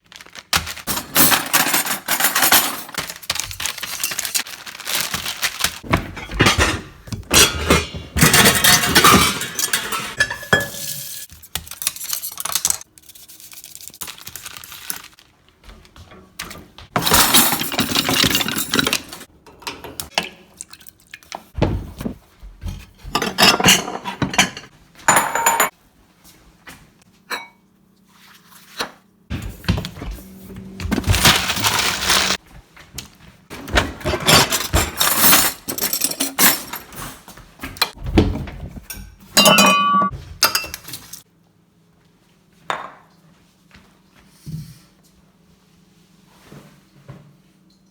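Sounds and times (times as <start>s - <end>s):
bowl and utensils clattering: 0.8s - 4.4s, 5.7s - 12.8s, 16.9s - 20.5s, 21.7s - 25.7s, 27.3s - 27.6s, 30.8s - 32.4s, 33.6s - 38.0s, 38.7s - 41.2s.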